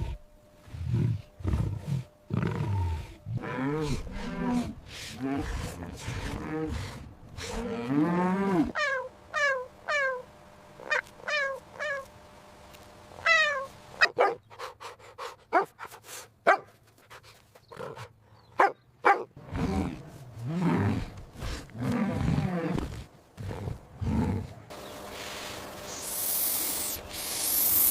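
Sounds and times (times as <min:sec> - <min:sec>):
dog barking: 0:14.0 - 0:14.4, 0:15.5 - 0:15.7, 0:16.4 - 0:16.7, 0:18.6 - 0:19.3.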